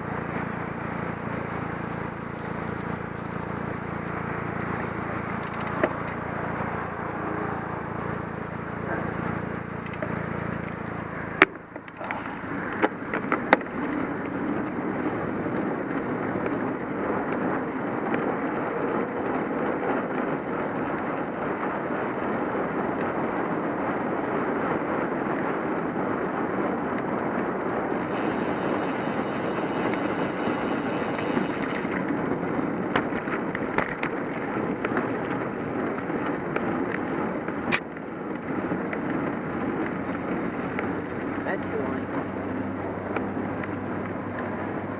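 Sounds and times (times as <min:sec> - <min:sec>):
bicycle tyres on road: 0:00.0 - 0:44.9
wind noise: 0:00.0 - 0:44.9
low hum: 0:27.9 - 0:32.5.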